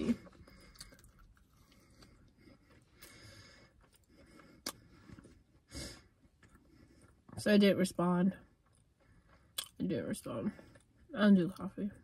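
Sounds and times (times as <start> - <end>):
soft chewing: 0.0 - 7.4, 8.3 - 12.0.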